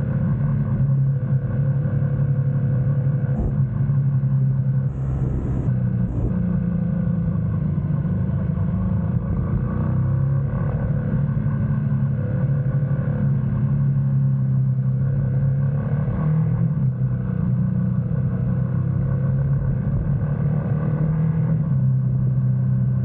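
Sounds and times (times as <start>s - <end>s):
motorcycle engine running: 3.2s - 11.1s.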